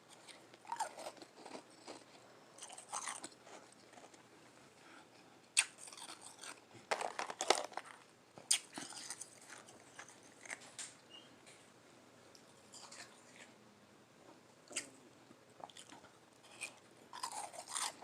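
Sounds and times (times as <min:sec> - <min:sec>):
soft chewing: 0:00.0 - 0:06.9, 0:07.8 - 0:11.7, 0:12.3 - 0:13.6, 0:14.2 - 0:18.0
person biting and crunching ice: 0:16.5 - 0:18.0.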